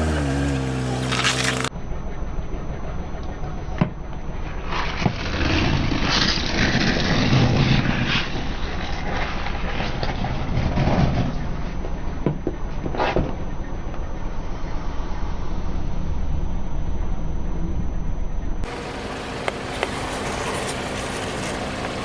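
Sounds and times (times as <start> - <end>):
tyres crunching over objects: 0.0 - 1.7
car engine rumble: 0.0 - 22.0.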